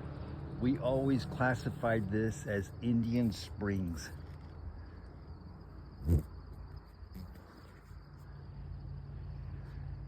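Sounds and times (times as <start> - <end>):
low outdoor rumble: 0.0 - 10.0
insect trilling: 1.6 - 8.7.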